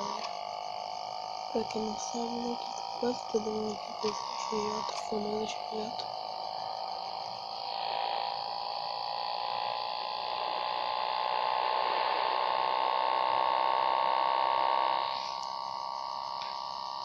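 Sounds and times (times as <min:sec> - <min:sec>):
motorcycle engine whine accelerating: 0:00.0 - 0:17.0.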